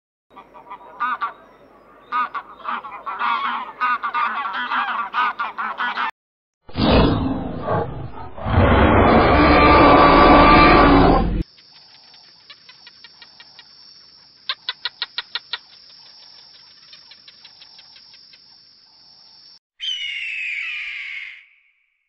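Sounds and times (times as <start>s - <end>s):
animal roar: 6.8s - 11.4s
loud squawk falling in pitch: 19.8s - 21.7s.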